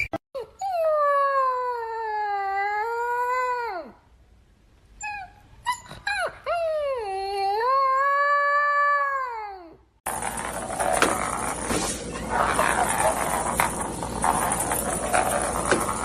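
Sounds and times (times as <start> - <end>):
dog yipping: 5.0 - 7.2.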